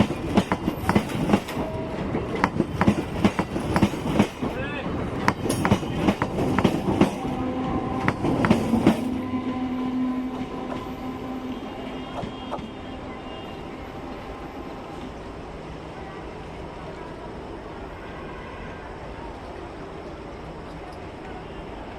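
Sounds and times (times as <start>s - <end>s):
train wheels clicking over rail joints: 0.0s - 7.4s, 8.0s - 9.1s.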